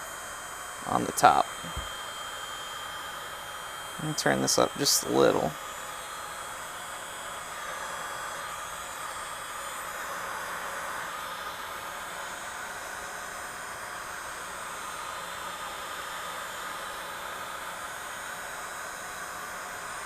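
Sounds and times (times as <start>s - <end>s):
heat gun blowing: 0.0s - 20.0s.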